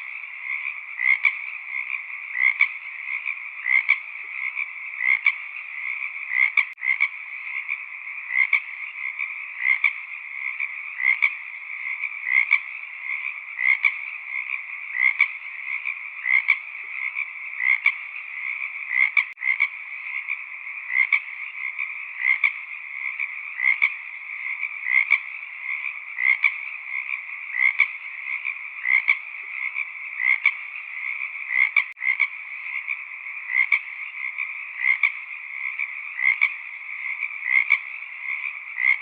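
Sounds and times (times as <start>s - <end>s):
chorus of frogs calling: 0.0s - 39.0s
loud frog croaks: 0.0s - 39.0s.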